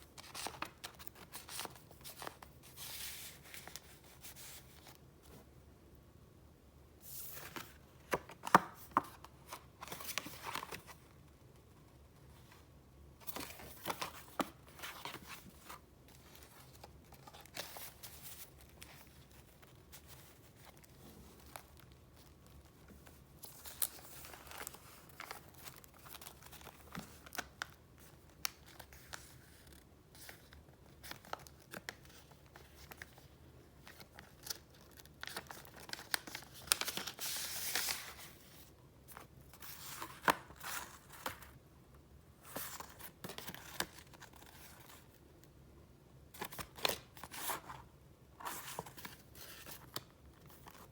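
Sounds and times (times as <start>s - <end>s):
paper rustling: 33.8s - 41.6s.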